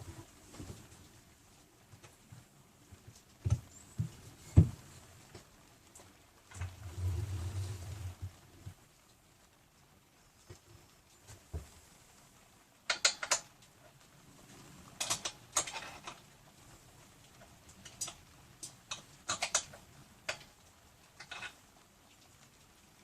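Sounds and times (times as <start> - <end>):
small tools clicking: 12.9 - 13.4, 15.0 - 16.2, 17.8 - 20.5, 21.2 - 21.6.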